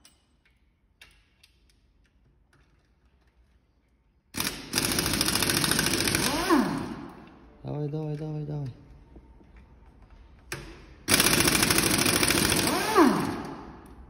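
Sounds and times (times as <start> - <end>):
air wrench rattling: 0.0 - 7.2, 11.0 - 14.0.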